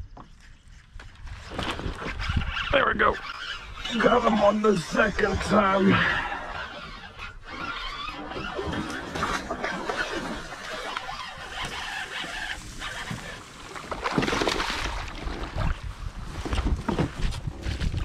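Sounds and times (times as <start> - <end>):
water splashing against kayak: 0.0 - 18.0.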